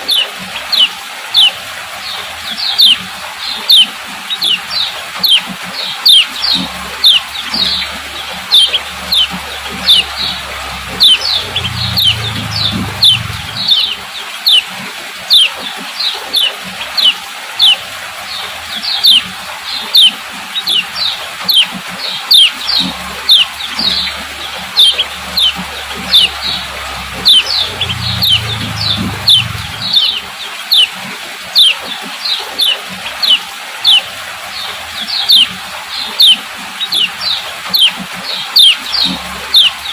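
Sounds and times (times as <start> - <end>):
bird chirping calls: 0.0 - 14.7, 15.3 - 39.9
faint low hum: 6.4 - 14.0, 22.6 - 30.3.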